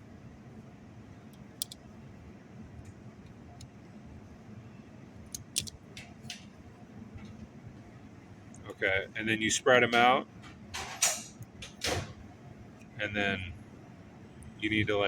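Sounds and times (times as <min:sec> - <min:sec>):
steady low hum: 0:00.0 - 0:15.0
small metal hardware clicking: 0:01.3 - 0:01.8, 0:05.3 - 0:05.8.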